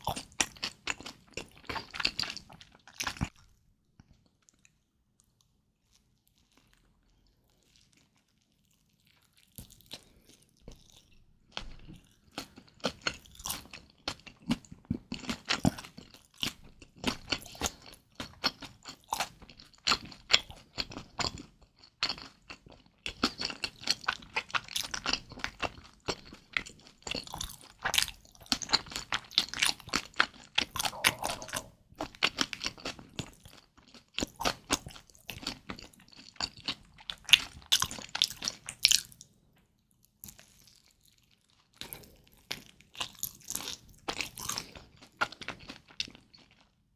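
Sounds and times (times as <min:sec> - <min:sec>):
wet crunchy chewing: 0:00.0 - 0:03.5, 0:11.9 - 0:39.2, 0:40.3 - 0:46.7.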